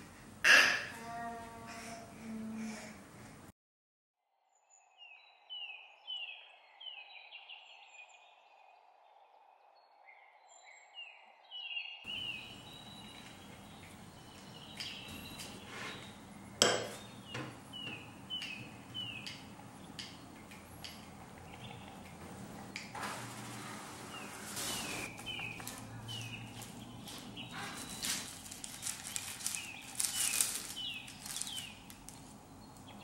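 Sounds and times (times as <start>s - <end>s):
small birds chirping: 4.7s - 8.8s, 10.1s - 22.9s, 24.1s - 33.0s.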